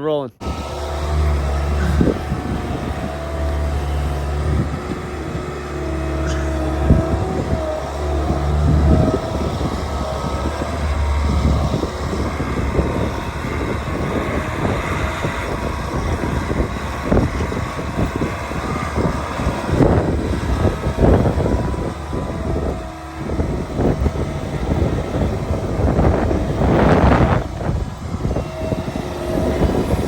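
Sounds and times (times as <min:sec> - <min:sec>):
diesel engine running: 0:00.4 - 0:30.0
machine knocks and rattles: 0:00.4 - 0:30.0.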